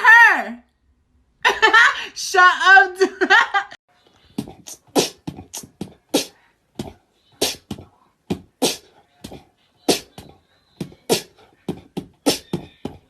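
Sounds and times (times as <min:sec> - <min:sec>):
beatboxing: 0:04.2 - 0:13.0.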